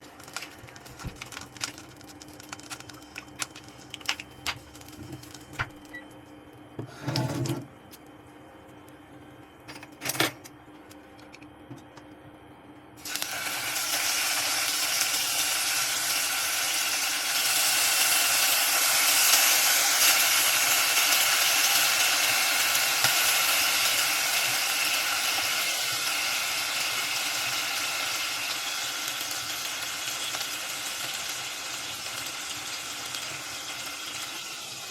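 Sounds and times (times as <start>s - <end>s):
food sizzling in a pan: 13.0s - 34.9s.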